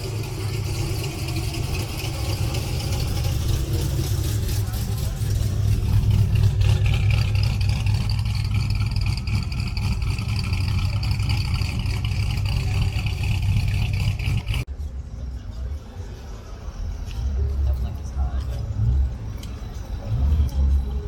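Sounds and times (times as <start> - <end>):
car engine running: 0.0 - 14.7.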